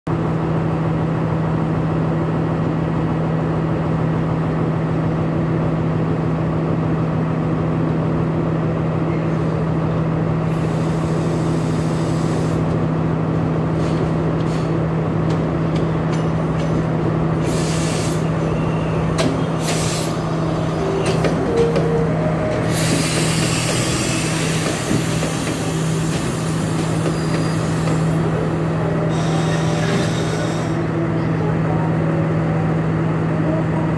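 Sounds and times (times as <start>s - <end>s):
diesel train droning: 0.2s - 33.9s
train wheels clattering over rails: 13.8s - 18.2s, 19.0s - 28.3s.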